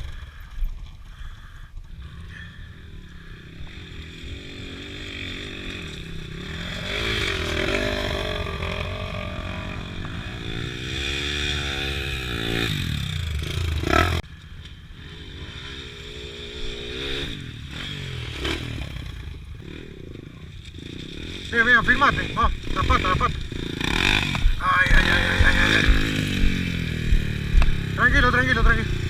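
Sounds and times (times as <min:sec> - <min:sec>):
motorcycle engine revving: 0:00.0 - 0:29.0
low wind rumble: 0:22.2 - 0:29.0.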